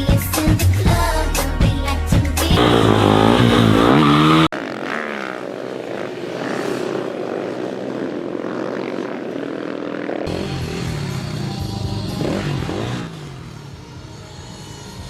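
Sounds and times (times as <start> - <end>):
pop song with singing: 0.0 - 4.0
distant engine running: 2.6 - 8.0.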